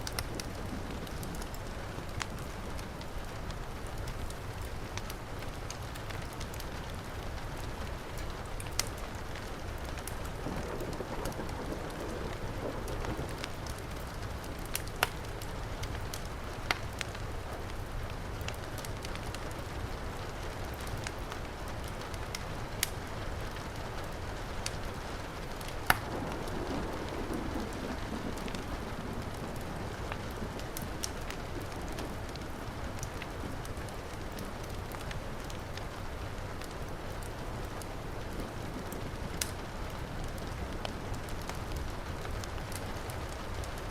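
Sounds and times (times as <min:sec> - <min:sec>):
wood fire crackling: 0:00.0 - 0:43.9
sharp fire pops: 0:24.6 - 0:35.9, 0:38.8 - 0:39.7.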